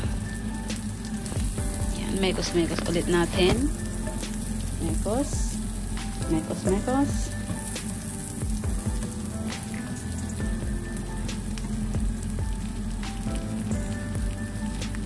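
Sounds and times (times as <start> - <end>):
onion sizzling in a frying pan: 0.0 - 15.0.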